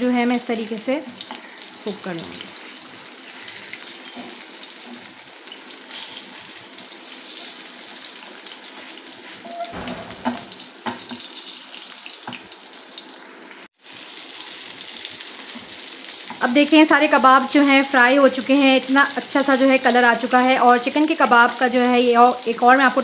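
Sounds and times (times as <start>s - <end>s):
food sizzling in oil: 0.0s - 23.0s
knocks and scrapes in pan: 9.5s - 11.2s.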